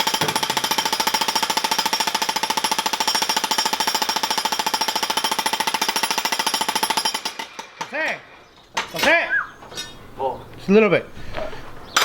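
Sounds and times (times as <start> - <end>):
jackhammer breaking concrete: 0.0 - 8.1.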